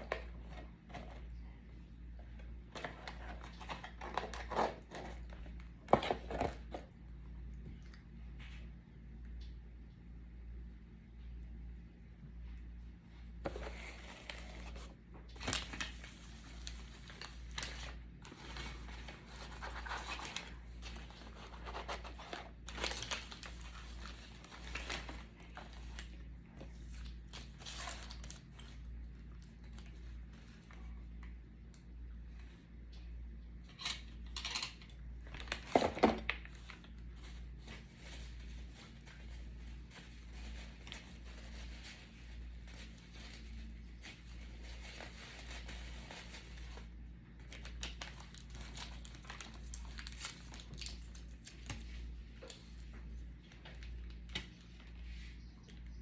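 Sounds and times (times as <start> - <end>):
fast-food wrappers crinkling: 13.5 - 30.7, 35.2 - 55.5.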